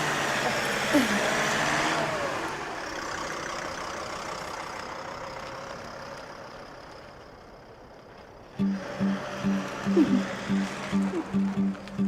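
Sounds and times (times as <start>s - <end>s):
vehicle driving away: 0.0s - 7.6s, 8.5s - 12.0s
music: 8.6s - 12.0s.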